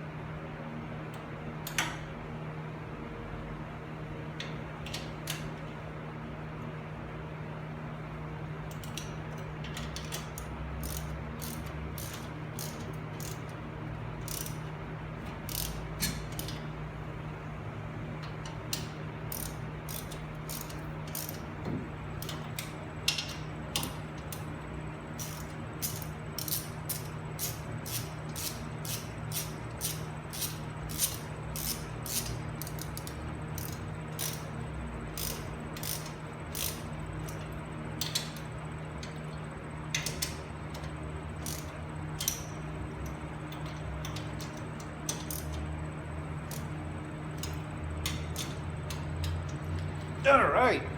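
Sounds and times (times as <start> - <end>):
steady low hum: 0.0 - 50.9
ratchet wrench clicking: 8.7 - 13.5, 14.2 - 16.6, 18.4 - 21.4, 22.2 - 24.5, 25.2 - 34.5, 35.1 - 39.2, 39.9 - 45.6, 46.4 - 46.7, 47.4 - 49.8.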